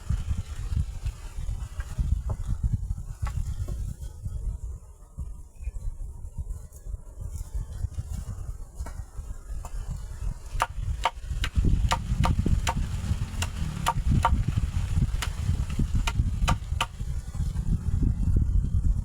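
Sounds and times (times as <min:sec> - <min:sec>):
blade chopping into wood: 0:10.6 - 0:14.4, 0:16.0 - 0:17.0
low rumble: 0:11.2 - 0:19.0.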